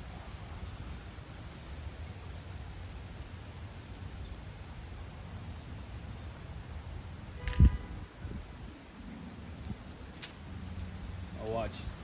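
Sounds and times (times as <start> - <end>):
wind buffeting microphone: 7.4 - 8.8.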